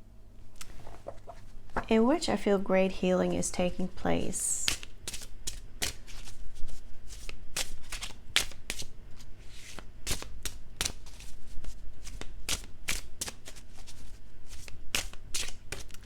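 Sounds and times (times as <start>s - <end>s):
cards being shuffled: 0.6s - 1.9s, 4.6s - 8.9s, 9.5s - 16.0s.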